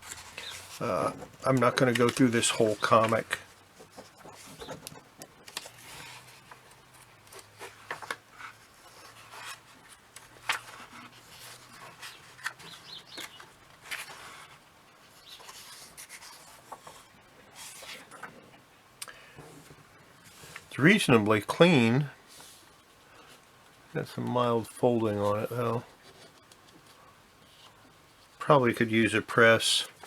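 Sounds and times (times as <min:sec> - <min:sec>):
paper pages rustling: 0:00.0 - 0:18.3.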